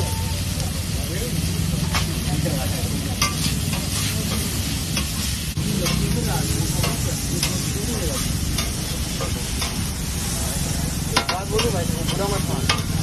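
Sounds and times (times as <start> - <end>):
chicken sizzling on a griddle: 0.0 - 13.0
metal spatula scraping and tapping: 3.2 - 6.2, 6.8 - 9.8, 11.2 - 13.0.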